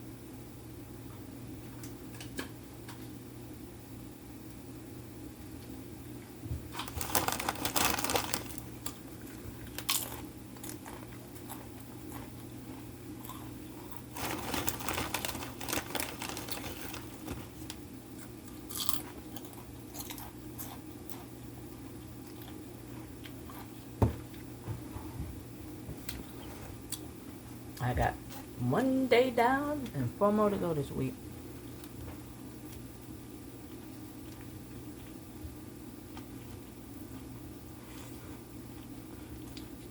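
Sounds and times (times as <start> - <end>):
chewing and crunching food: 6.2 - 24.5, 33.6 - 35.3, 36.1 - 39.9.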